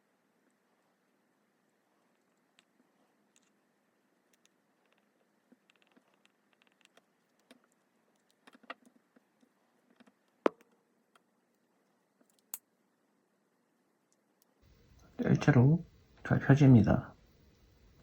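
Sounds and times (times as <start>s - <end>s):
small parts and tools clicking: 1.7s - 3.6s, 4.2s - 12.7s.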